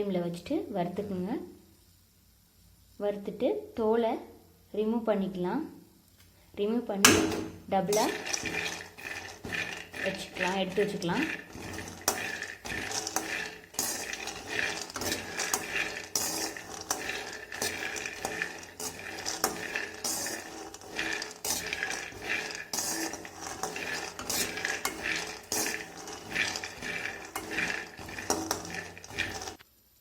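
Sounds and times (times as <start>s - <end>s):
utensil scraping metal pan: 7.0s - 29.6s
peanuts rattling: 7.2s - 29.6s.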